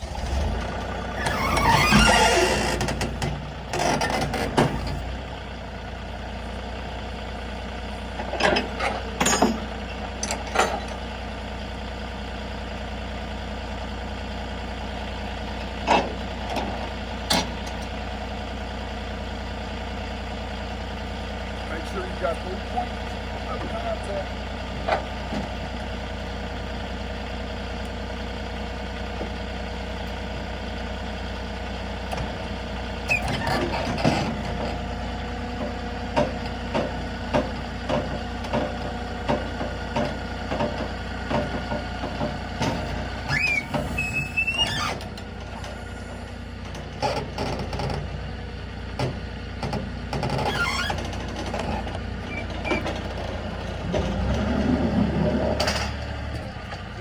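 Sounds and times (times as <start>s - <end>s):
engine running: 0.0s - 57.0s
metal clanks and knocks: 8.2s - 11.0s, 49.0s - 56.9s
brief high squeal: 43.3s - 45.0s.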